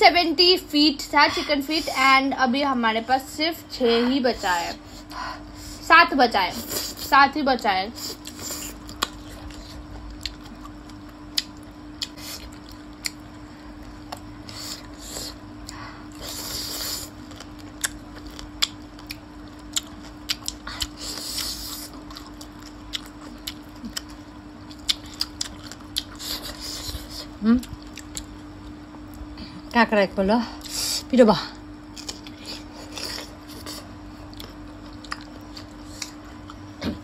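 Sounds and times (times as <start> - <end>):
person chewing and sucking bones: 8.0 - 13.2, 13.8 - 29.3, 31.9 - 37.0.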